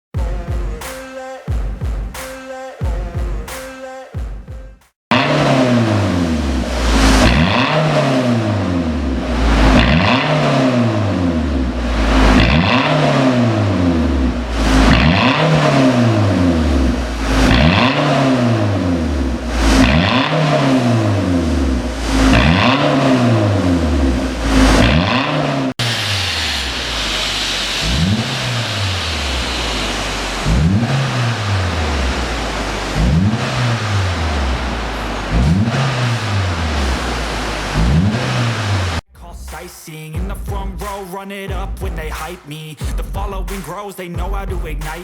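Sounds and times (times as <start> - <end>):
car engine revving: 5.1 - 39.0.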